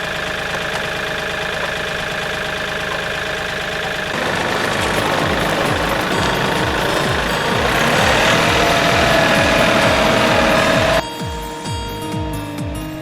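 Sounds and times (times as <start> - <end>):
diesel engine idling and revving: 0.0 - 11.0.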